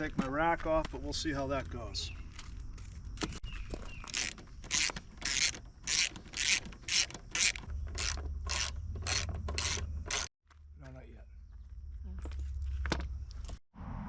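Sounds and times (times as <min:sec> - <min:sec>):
ratchet wrench clicking: 0:04.1 - 0:10.3.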